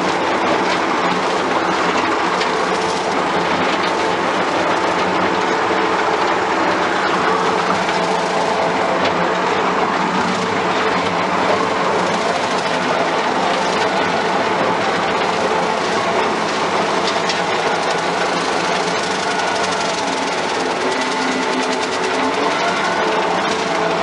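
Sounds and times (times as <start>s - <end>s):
mower deck cutting grass: 0.0s - 24.0s
skid steer engine running under load: 0.0s - 24.0s.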